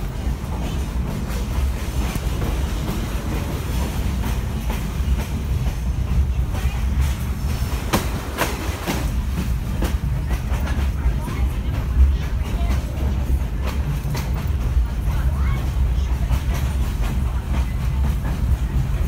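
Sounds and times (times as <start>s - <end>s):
train wheels rumbling: 0.0s - 19.0s
wheels clickety-clack: 0.0s - 19.0s.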